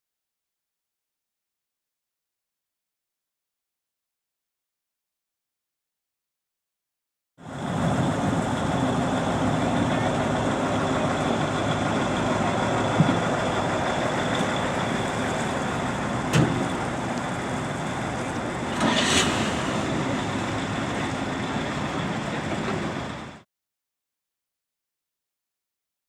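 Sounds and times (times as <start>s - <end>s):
truck engines running: 7.4s - 23.4s
short hiss: 18.7s - 21.0s.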